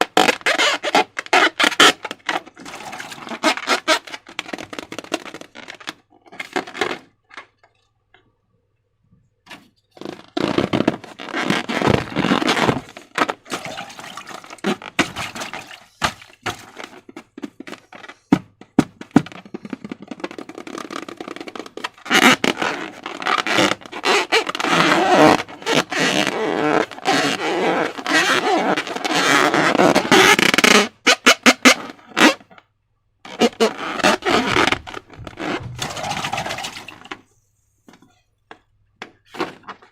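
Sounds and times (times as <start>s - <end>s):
slime squelching and crackling: 11.0s - 17.0s, 33.5s - 37.2s.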